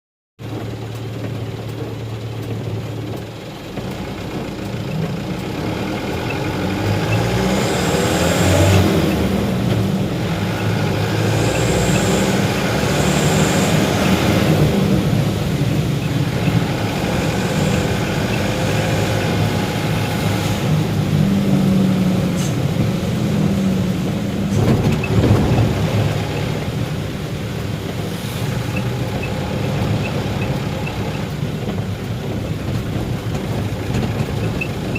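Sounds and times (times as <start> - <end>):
truck engine running: 0.4 - 34.9.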